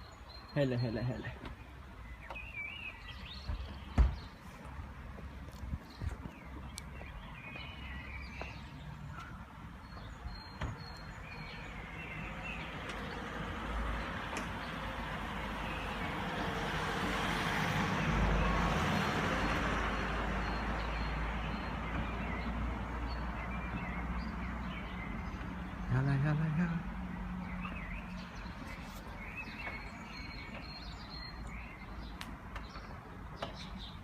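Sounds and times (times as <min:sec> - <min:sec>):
car passing by: 0:12.0 - 0:24.8.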